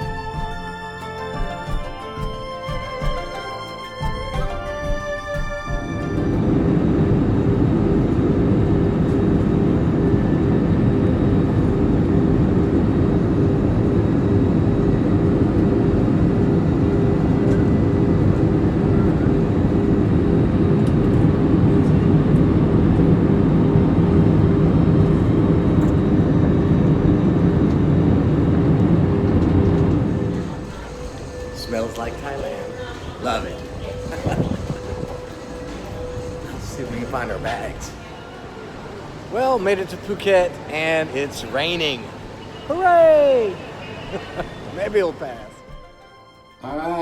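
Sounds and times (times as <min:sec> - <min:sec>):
jet engine cabin rumble: 0:04.3 - 0:39.4.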